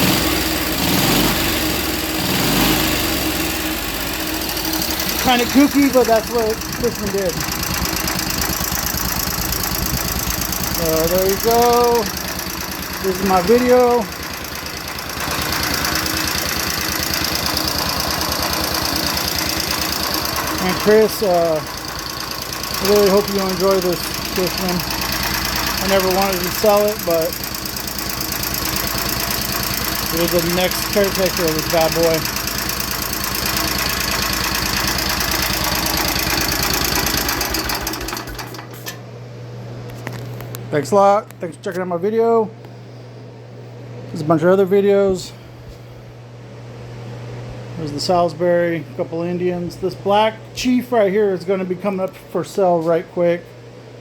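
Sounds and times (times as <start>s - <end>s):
scooter engine idling: 0.0s - 38.9s.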